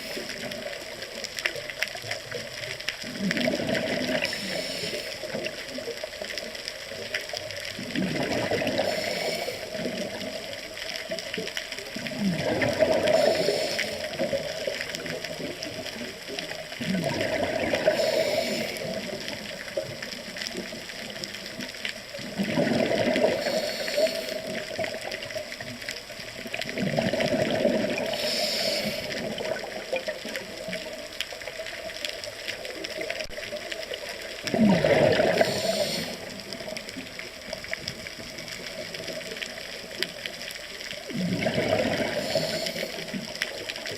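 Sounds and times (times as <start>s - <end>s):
steady water hiss: 0.0s - 43.9s
scuba diver exhaling bubbles: 3.0s - 5.4s, 7.8s - 10.4s, 12.0s - 14.8s, 16.8s - 19.3s, 22.2s - 24.9s, 26.7s - 30.0s, 34.4s - 36.8s, 41.1s - 43.3s.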